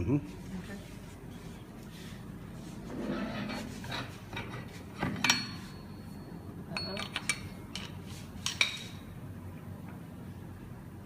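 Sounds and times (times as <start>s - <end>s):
metal parts clinking and knocking: 6.8s - 8.8s.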